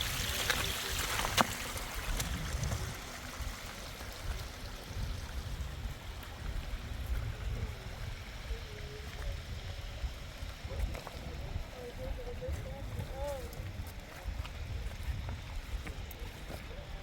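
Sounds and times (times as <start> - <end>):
flowing water: 0.0 - 17.0.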